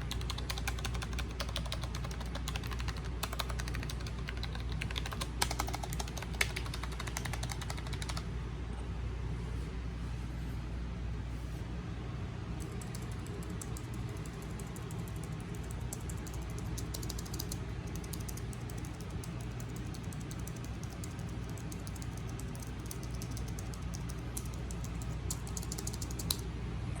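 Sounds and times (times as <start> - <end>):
air conditioner hum: 0.0 - 27.0
keyboard key clicks: 12.6 - 26.4.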